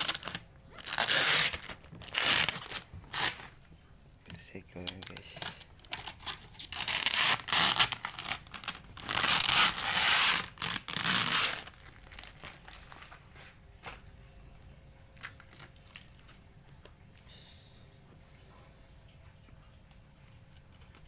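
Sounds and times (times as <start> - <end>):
tape and plastic tearing: 0.0 - 3.6, 4.9 - 14.0
faint rustles and clicks: 18.0 - 21.0.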